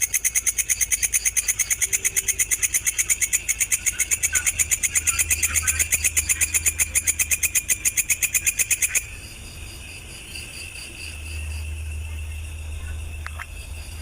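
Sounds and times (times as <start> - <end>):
low hum: 4.0 - 14.0.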